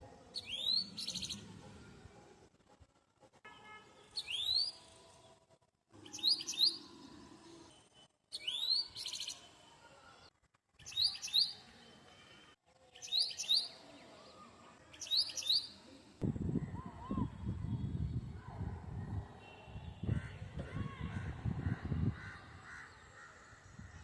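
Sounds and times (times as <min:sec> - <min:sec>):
songbird whistled chirps: 0:08.4 - 0:09.4.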